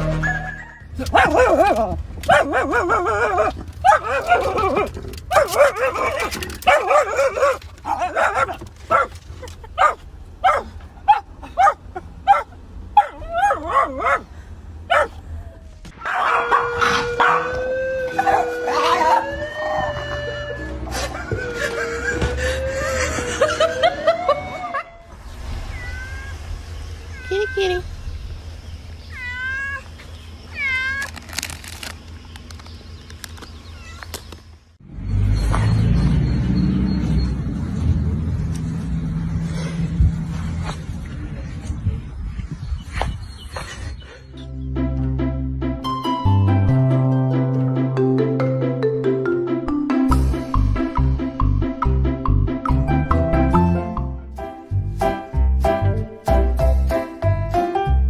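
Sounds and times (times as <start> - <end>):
dog yipping and howling: 0.2 - 9.1, 9.8 - 14.2, 16.0 - 20.5
cat meowing: 25.7 - 26.4, 29.1 - 29.9, 30.5 - 31.1
music: 44.4 - 58.0.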